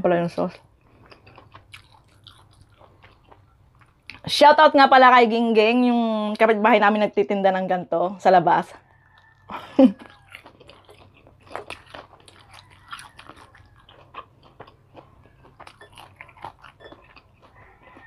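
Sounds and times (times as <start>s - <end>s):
crunchy chewing: 0.5s - 4.3s, 8.8s - 18.0s.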